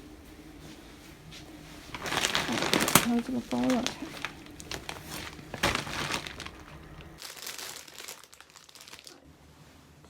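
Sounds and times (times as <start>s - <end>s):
waist bag crinkling and rustling: 1.8s - 9.3s.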